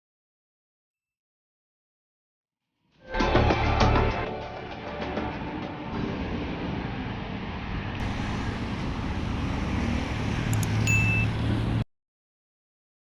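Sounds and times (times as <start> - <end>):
urban traffic rumble: 3.6 - 11.9
low hum: 5.2 - 11.8.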